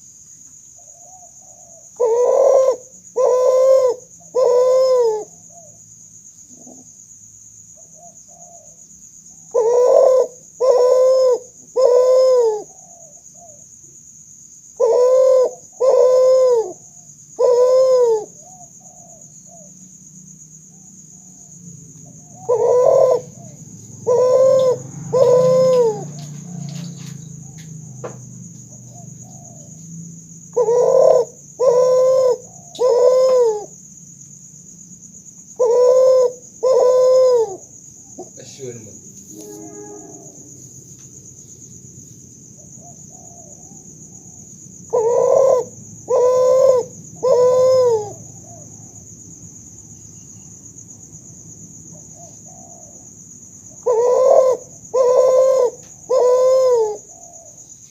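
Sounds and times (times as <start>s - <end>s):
dove cooing: 0.8s - 5.8s, 7.8s - 13.6s, 14.8s - 19.8s, 20.7s - 29.8s, 30.4s - 33.8s, 35.5s - 38.8s, 42.6s - 49.0s, 51.9s - 57.9s.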